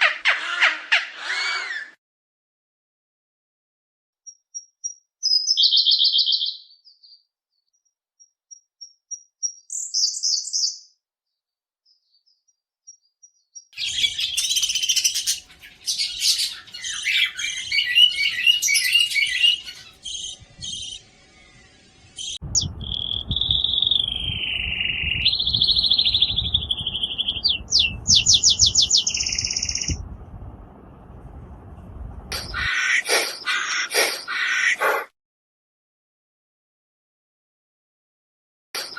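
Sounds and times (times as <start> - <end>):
whistled bird song: 4.3 - 11.0, 11.8 - 30.0
birds chirping: 11.9 - 30.2, 32.3 - 35.1
birds chattering: 13.8 - 30.0.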